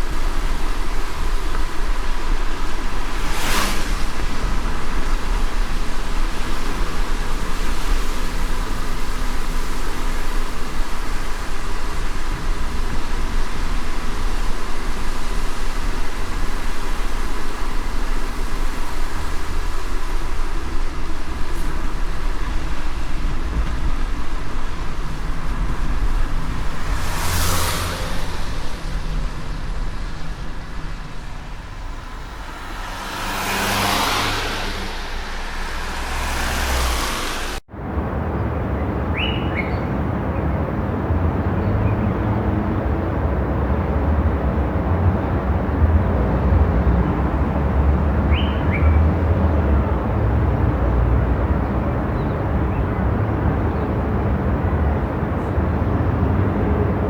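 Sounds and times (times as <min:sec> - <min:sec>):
tyre hiss: 0:00.0 - 0:37.6
car road rumble: 0:00.0 - 0:57.0.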